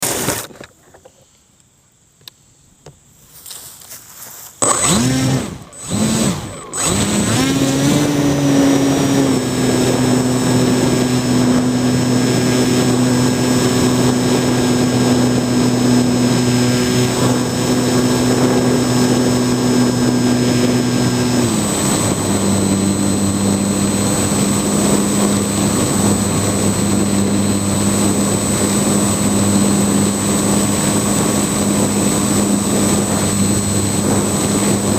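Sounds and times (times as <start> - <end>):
drone motor humming: 4.6 - 34.9
drone throttle blips: 4.6 - 34.9.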